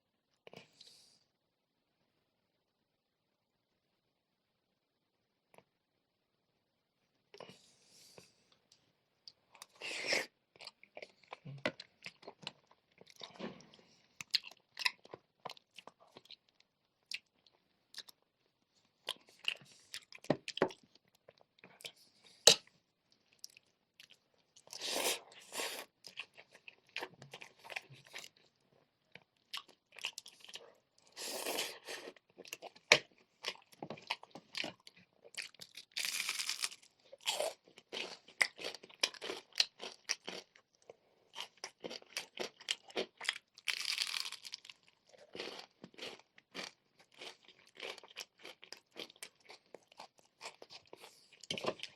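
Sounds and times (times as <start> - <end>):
chewing noodles: 23.1 - 51.9
crunching fried chicken: 31.6 - 40.7, 41.3 - 51.9.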